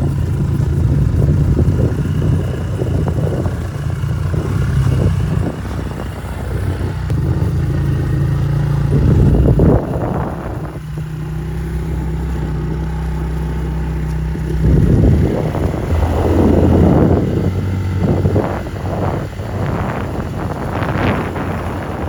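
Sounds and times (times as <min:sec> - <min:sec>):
vehicle engine running: 0:00.0 - 0:22.0
bursts of rushing noise: 0:15.4 - 0:18.4.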